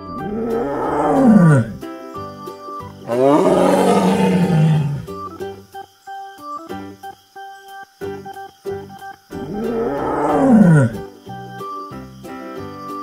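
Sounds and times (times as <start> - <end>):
tiger roaring: 0.0 - 1.8, 3.1 - 5.2, 9.4 - 11.0
light background music: 0.0 - 13.0.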